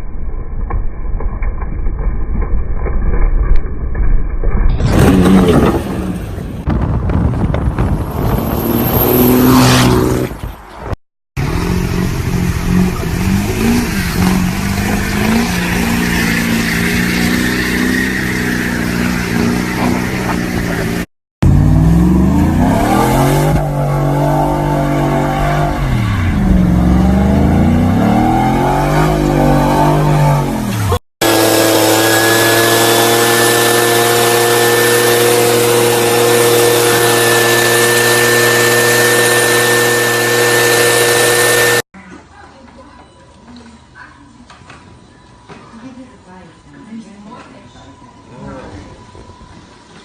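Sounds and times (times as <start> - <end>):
engine revving: 8.2 - 10.4, 11.4 - 41.9.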